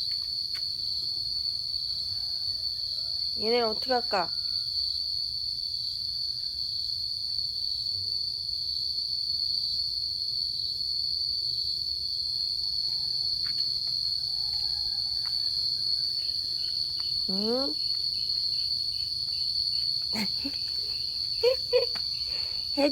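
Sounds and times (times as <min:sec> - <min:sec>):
insects calling: 0:09.4 - 0:22.9.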